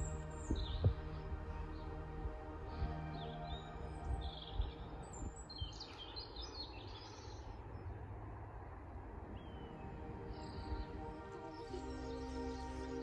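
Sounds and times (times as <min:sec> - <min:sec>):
small birds chirping: 0:00.0 - 0:08.0
soft background music: 0:00.0 - 0:13.0.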